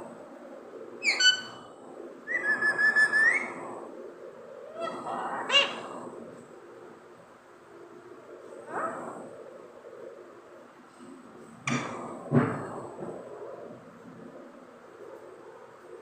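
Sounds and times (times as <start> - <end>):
parrot whistling and calling: 1.0 - 1.6, 2.3 - 3.5.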